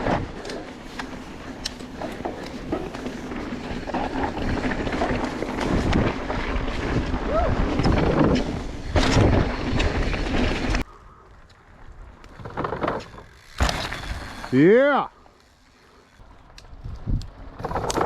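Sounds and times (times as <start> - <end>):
tyres rolling over dirt: 0.0 - 10.8, 11.7 - 16.4
bike rattling: 0.0 - 18.0
wind buffeting microphone: 16.7 - 18.0.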